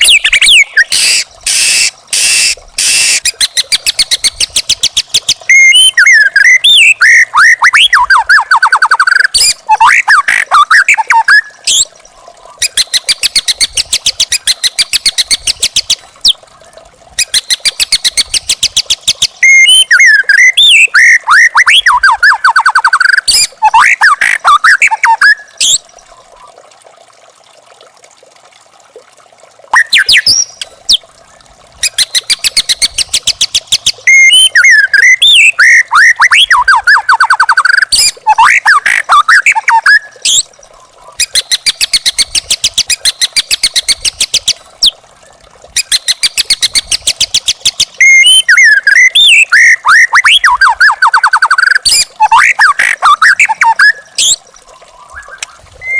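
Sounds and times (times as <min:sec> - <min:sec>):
bird whistled song: 0:00.0 - 0:11.9, 0:17.2 - 0:25.8, 0:29.8 - 0:31.0, 0:31.8 - 0:40.4, 0:45.8 - 0:55.9.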